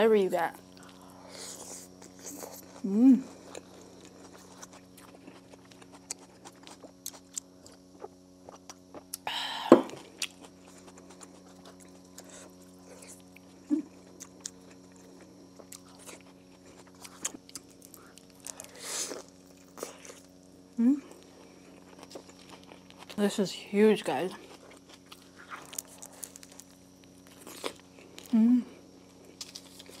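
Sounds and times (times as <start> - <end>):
person chewing food: 0.7 - 23.2, 24.4 - 30.0
biting into foil-wrapped food: 0.8 - 9.1, 10.1 - 20.5, 24.4 - 28.4, 29.0 - 30.0.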